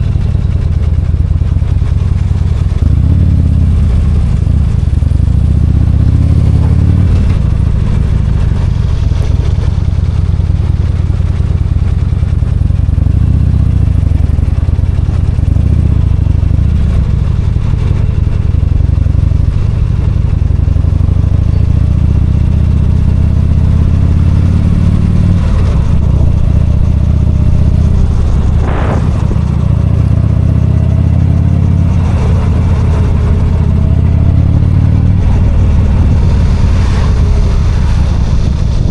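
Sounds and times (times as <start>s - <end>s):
motorcycle engine running: 0.0s - 38.9s
short sharp sound: 27.9s - 30.6s.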